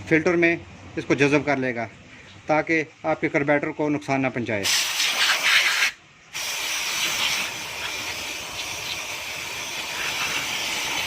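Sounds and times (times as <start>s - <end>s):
aerosol spray hissing: 4.6s - 11.0s.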